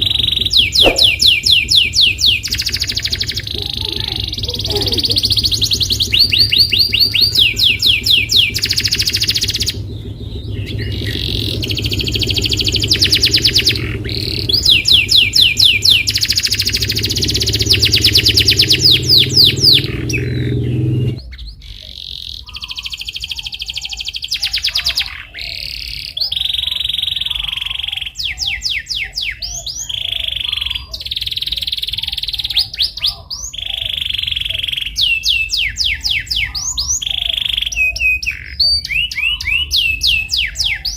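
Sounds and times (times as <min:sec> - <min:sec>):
steady low hum: 0:00.0 - 0:21.2
canary singing trills: 0:00.0 - 0:40.9.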